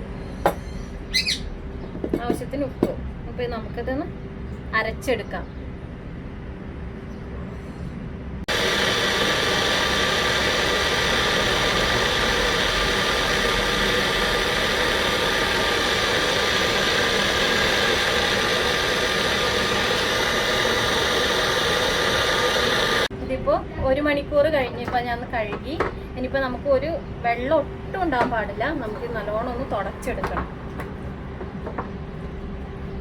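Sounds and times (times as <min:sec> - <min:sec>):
mixer grinder motor whine: 0:08.5 - 0:23.1.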